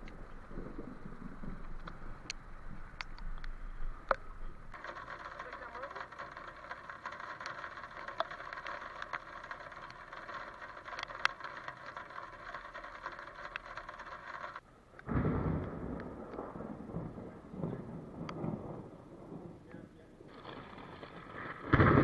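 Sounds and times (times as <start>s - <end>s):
low rumbling noise: 0.0s - 22.0s
heavy rain falling: 4.7s - 14.5s, 20.3s - 22.0s.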